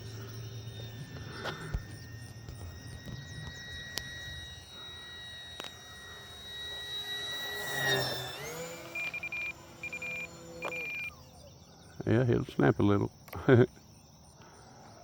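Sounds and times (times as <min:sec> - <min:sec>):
short buzzing pulses: 0:00.0 - 0:11.1
model plane propeller whining: 0:00.0 - 0:13.4.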